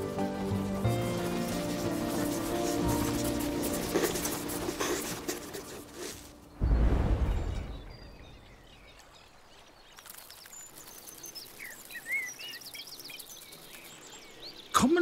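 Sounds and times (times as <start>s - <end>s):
small birds chirping: 0.0s - 15.0s
deep boom: 6.6s - 8.4s.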